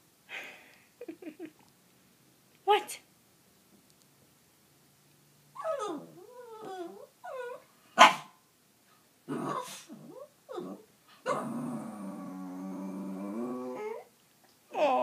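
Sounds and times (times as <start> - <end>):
dog howling: 5.6 - 7.6, 9.5 - 14.1
dog whining: 5.6 - 7.7, 9.3 - 14.1
dog barking: 8.0 - 8.4.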